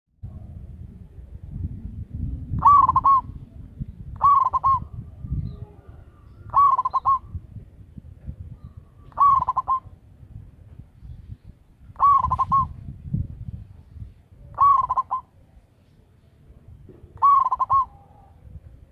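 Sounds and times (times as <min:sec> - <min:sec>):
steady low rumble: 0:00.2 - 0:17.3
dove cooing: 0:02.5 - 0:03.4, 0:04.2 - 0:07.4, 0:08.7 - 0:10.0, 0:12.0 - 0:12.8, 0:14.5 - 0:15.4, 0:17.1 - 0:18.6.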